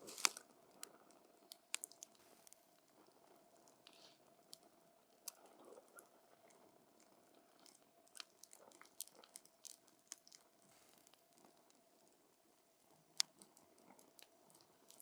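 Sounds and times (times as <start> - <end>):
campfire crackling: 0.0 - 3.8.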